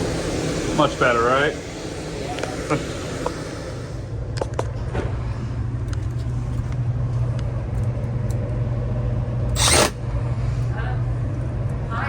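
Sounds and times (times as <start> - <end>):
blower motor humming: 0.0 - 12.0.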